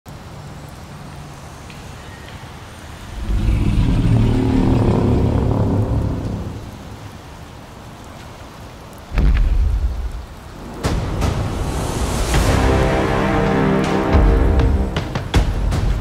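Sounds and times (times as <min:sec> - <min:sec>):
rain-like hiss: 0:00.1 - 0:16.0
deep rumble: 0:03.0 - 0:07.1.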